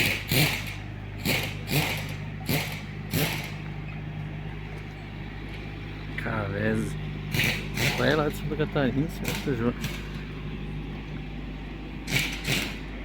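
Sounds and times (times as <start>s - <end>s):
short noisy bursts: 0.0s - 3.6s, 7.3s - 8.2s, 12.0s - 12.9s
vehicle engine droning: 0.0s - 13.0s.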